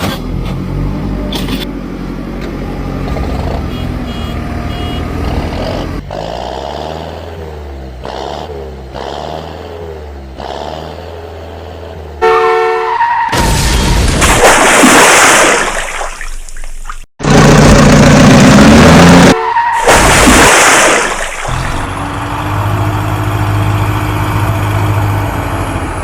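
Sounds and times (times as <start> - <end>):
rushing vehicle noise: 0.0 - 26.0
cartoon horn blast: 3.7 - 5.1, 12.2 - 13.2, 19.0 - 19.9
short tone: 3.7 - 5.1
low engine hum: 21.4 - 26.0.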